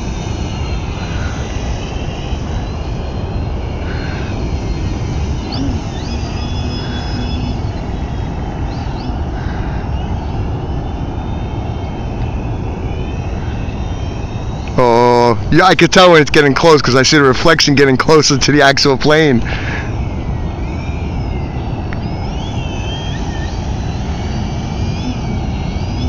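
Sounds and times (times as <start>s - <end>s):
model plane motor whining: 0.0s - 18.3s, 19.1s - 26.0s
wind rumble on microphone: 0.0s - 18.3s, 19.3s - 26.0s.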